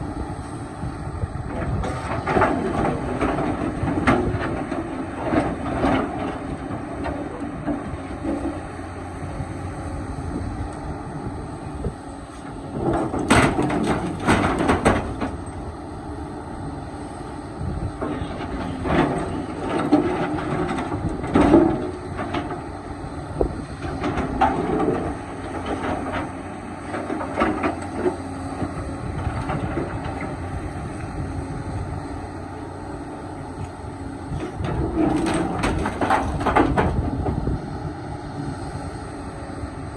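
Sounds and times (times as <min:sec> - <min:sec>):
excavator diesel engine: 0:00.0 - 0:39.9
bucket clanking and scraping rock: 0:01.5 - 0:08.6, 0:12.3 - 0:15.5, 0:18.0 - 0:22.8, 0:23.8 - 0:30.4, 0:34.3 - 0:37.5.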